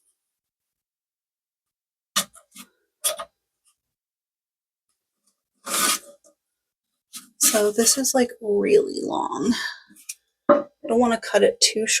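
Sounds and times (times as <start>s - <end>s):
plastic parts clicking and knocking: 2.2s - 3.4s.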